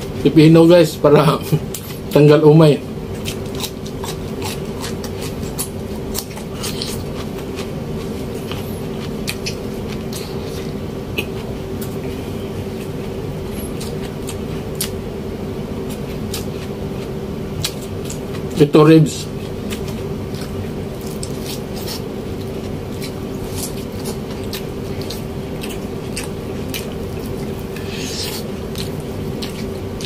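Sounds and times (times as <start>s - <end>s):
low electric hum: 0.0s - 30.0s
chewing raw celery: 3.2s - 12.0s, 12.7s - 15.0s, 19.2s - 30.0s.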